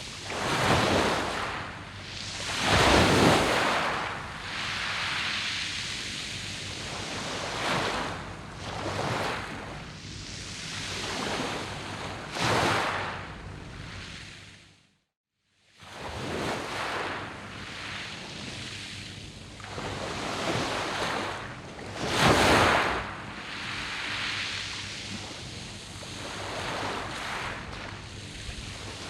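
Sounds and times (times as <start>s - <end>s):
waves breaking on pebble beach: 0.2s - 1.6s, 2.3s - 5.5s, 26.2s - 29.0s.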